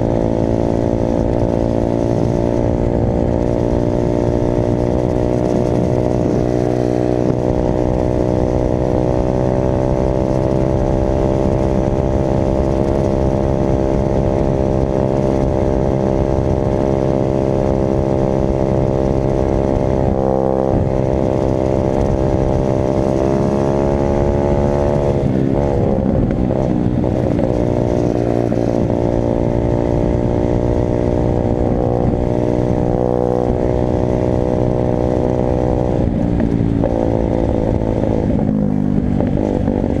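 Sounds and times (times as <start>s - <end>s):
dirt bike engine running: 0.0s - 40.0s.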